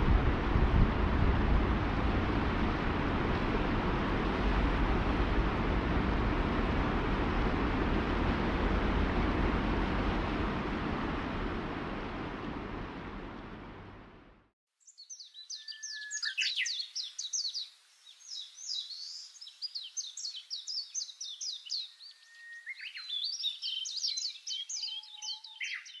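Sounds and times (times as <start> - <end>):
river rushing: 0.0 - 14.4
birds chirping and whistling: 15.0 - 17.6, 18.3 - 26.0.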